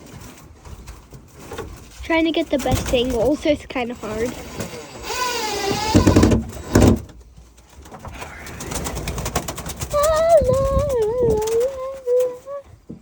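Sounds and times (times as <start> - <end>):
heavy thumps: 0.7 - 11.6
pigeon cooing: 8.1 - 12.8.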